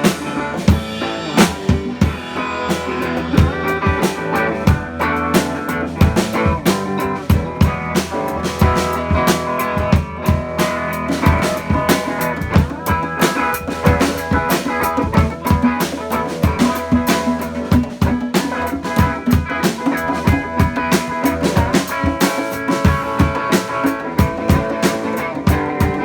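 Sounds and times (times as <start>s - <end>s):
bass notes: 0.0s - 15.6s
drum kit beat: 0.0s - 26.0s
guitar notes: 0.0s - 26.0s.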